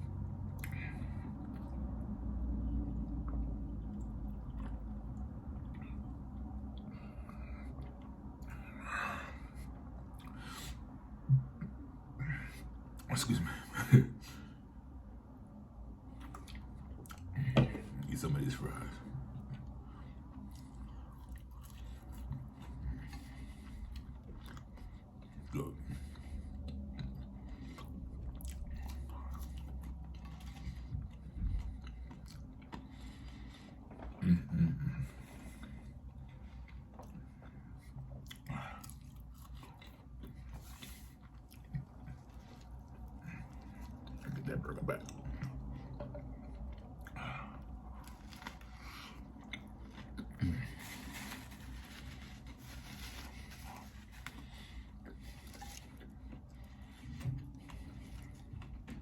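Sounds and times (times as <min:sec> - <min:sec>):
chewing food: 0:00.0 - 0:13.2, 0:15.5 - 0:59.0
low hum: 0:00.0 - 0:59.0
small crunches: 0:48.0 - 0:56.2.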